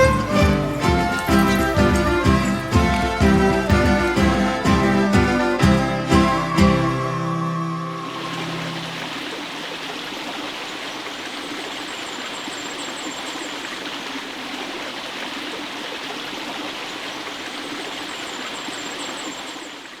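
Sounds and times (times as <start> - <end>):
stream water running: 0.0 - 20.0
faint high-pitched chirping: 17.6 - 20.0.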